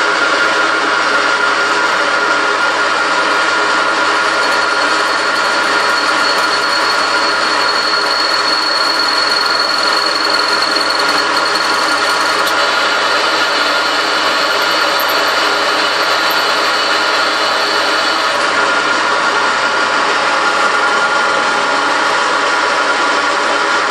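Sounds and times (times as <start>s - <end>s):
machine tool whining: 3.2s - 22.3s.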